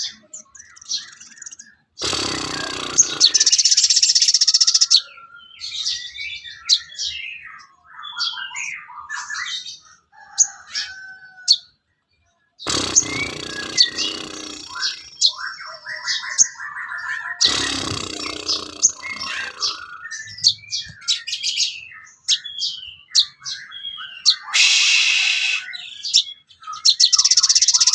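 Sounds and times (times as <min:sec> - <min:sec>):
harsh rattling bird call: 0:00.0 - 0:05.0, 0:12.7 - 0:15.5, 0:16.1 - 0:23.6, 0:24.2 - 0:27.9
bird chirps and whistles: 0:12.7 - 0:15.5, 0:22.3 - 0:27.9.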